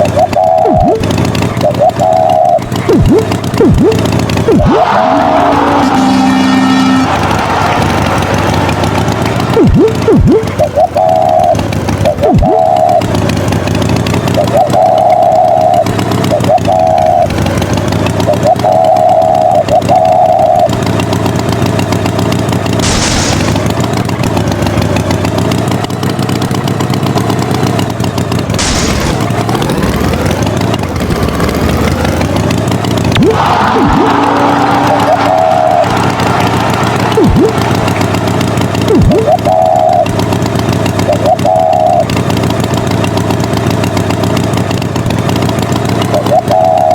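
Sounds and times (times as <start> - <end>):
higher held tone: 0.0 - 13.1
cartoon tractor engine running: 0.0 - 46.9.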